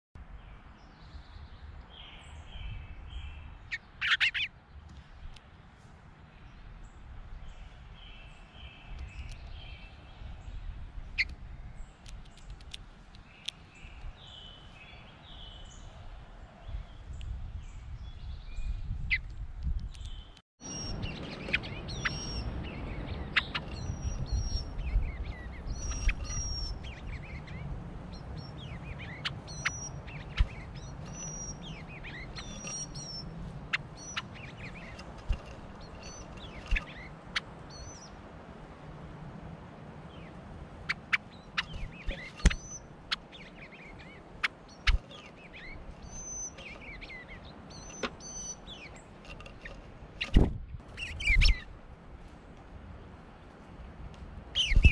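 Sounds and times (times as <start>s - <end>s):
wild birds chirping and calling: 2.0s - 4.6s, 20.1s - 38.2s, 40.0s - 51.8s, 54.6s - 54.9s.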